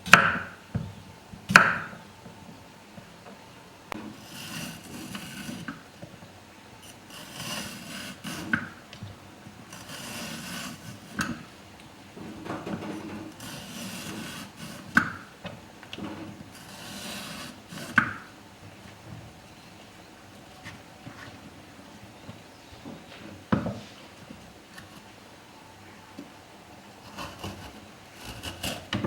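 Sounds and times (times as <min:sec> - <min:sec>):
scraping strokes: 0:03.9 - 0:05.8, 0:06.8 - 0:08.7, 0:09.6 - 0:11.5, 0:13.0 - 0:15.0, 0:16.5 - 0:18.1, 0:27.0 - 0:29.0.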